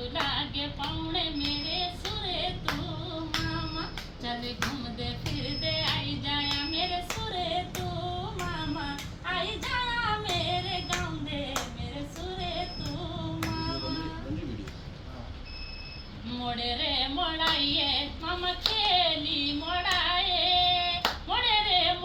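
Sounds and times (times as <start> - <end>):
woman singing folk song: 0.0 - 13.9
sharp clapping beat: 0.1 - 15.0, 17.4 - 17.8, 18.6 - 19.0, 19.8 - 21.4.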